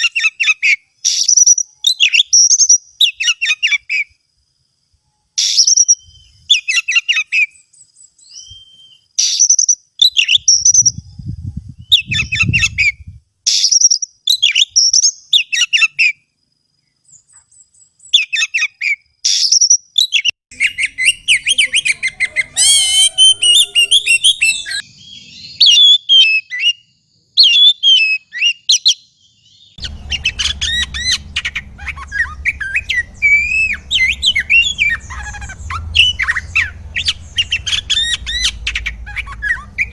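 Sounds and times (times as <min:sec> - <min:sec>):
bird singing whistles and chirps: 0:00.0 - 0:04.2, 0:05.0 - 0:16.3, 0:16.9 - 0:39.9
steady low hum: 0:29.8 - 0:39.9.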